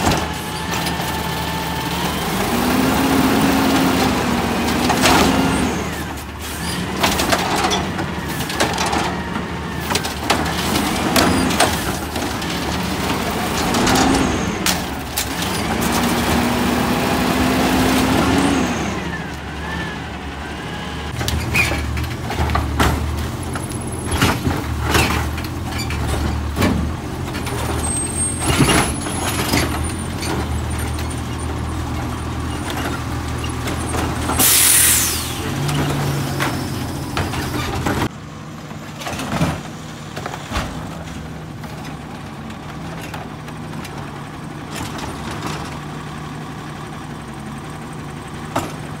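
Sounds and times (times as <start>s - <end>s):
bins clanking and trash falling: 0.0s - 18.6s, 21.1s - 38.1s, 38.8s - 44.0s
garbage truck engine revving: 0.0s - 38.4s
air brake hissing: 34.4s - 35.6s.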